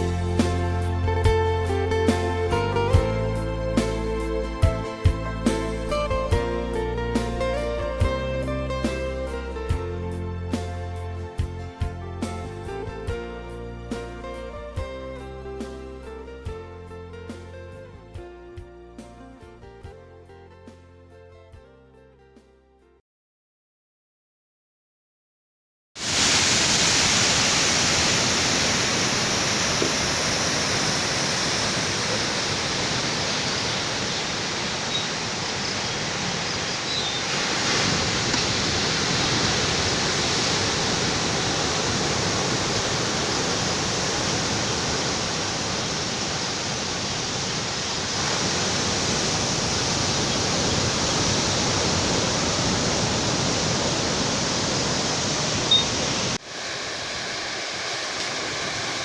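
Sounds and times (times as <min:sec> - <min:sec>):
ocean surf breaking: 0:26.0 - 0:59.0.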